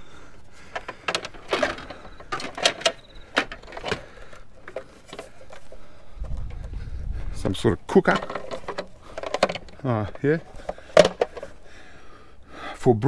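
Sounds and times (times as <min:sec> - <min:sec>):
clicks and taps of rummaging: 0:00.7 - 0:05.8, 0:08.0 - 0:11.6.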